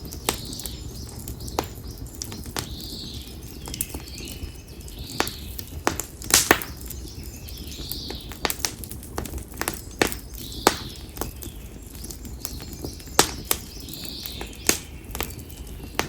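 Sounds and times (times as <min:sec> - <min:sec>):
firewood crackling and popping: 0:00.0 - 0:16.0.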